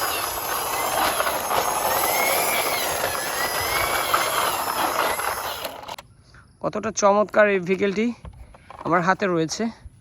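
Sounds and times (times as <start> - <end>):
toy siren tone: 0.0 - 5.1
toy electronic engine sound: 0.0 - 6.0.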